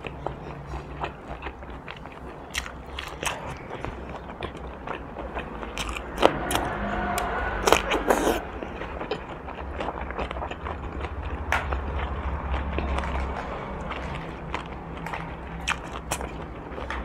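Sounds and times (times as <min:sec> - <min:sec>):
wet chewing: 0:00.0 - 0:17.0
cucumber crunching: 0:01.0 - 0:06.7.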